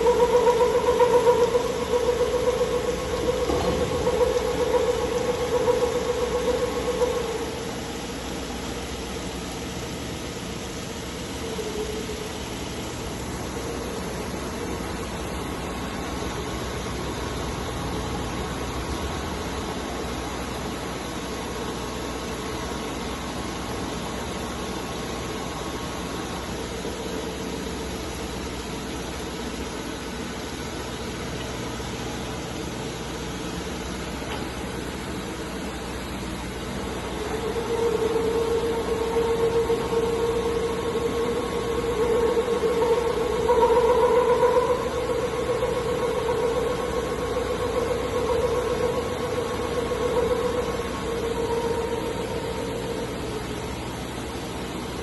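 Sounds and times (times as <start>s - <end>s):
milling machine running: 0.0s - 9.5s, 34.0s - 55.0s
constant hiss: 0.0s - 55.0s.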